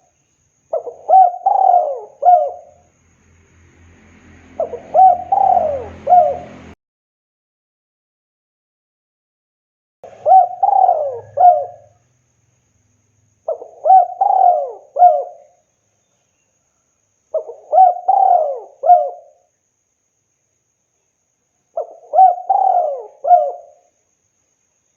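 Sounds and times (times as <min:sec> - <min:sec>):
dove cooing: 0:00.7 - 0:02.8, 0:04.6 - 0:06.7, 0:10.1 - 0:12.0, 0:13.5 - 0:15.5, 0:17.4 - 0:19.4, 0:21.8 - 0:23.8.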